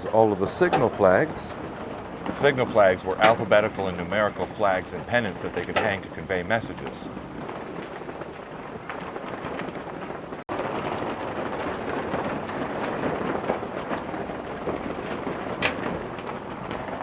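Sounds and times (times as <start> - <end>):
rushing open-air ambience: 0.0 - 17.0.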